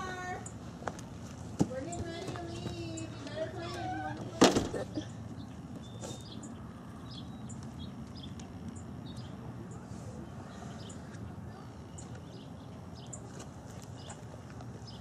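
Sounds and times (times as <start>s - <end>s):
small birds chirping: 4.8s - 15.0s.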